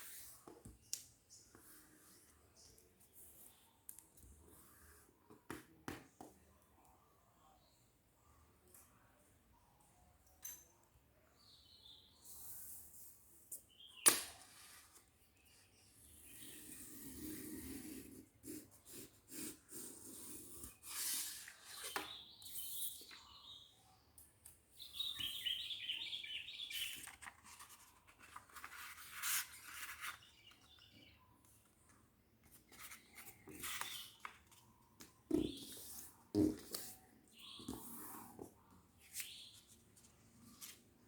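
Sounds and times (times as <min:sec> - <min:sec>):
paper rustling as it is folded: 0:26.7 - 0:30.8.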